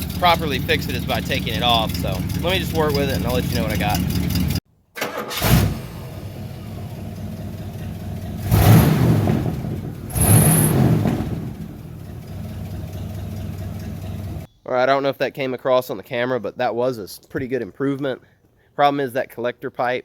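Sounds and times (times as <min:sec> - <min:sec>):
car engine idling and revving: 0:00.0 - 0:04.6, 0:05.4 - 0:14.5.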